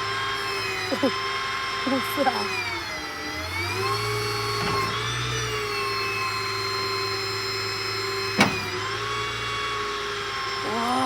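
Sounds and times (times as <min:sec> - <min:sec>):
machinery motor whine: 0:03.0 - 0:09.0.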